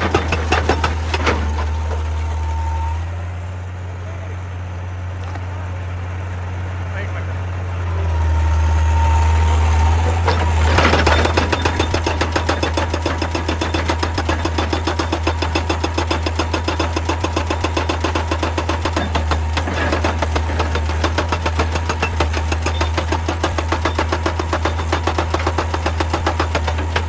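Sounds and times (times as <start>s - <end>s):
excavator diesel engine: 0.0s - 27.0s
rapid clatter: 10.1s - 27.0s.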